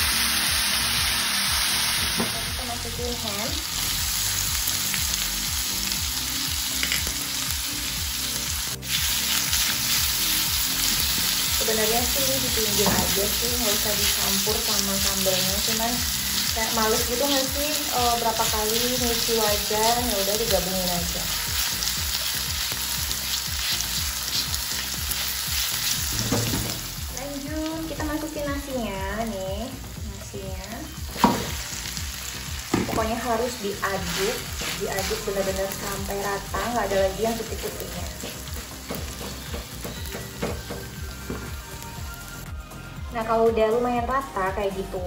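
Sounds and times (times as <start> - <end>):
food sizzling in hot oil: 0.0 - 42.4
spatula stirring: 33.9 - 35.4.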